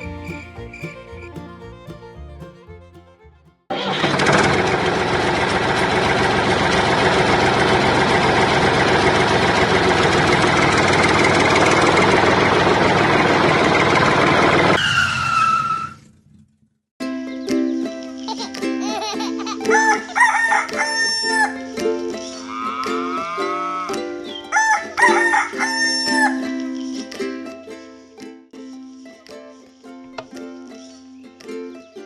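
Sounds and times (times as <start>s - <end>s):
engine running: 0.0s - 14.8s.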